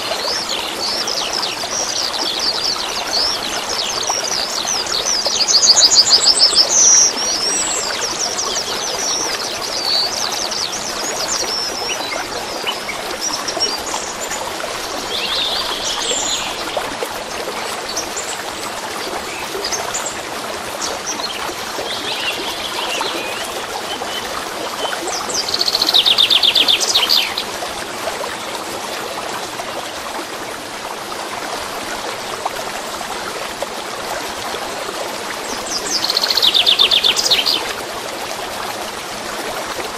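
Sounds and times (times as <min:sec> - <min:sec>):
songbirds singing: 0:00.0 - 0:16.8, 0:17.5 - 0:27.5, 0:35.4 - 0:37.8
small stream flowing: 0:00.0 - 0:39.9.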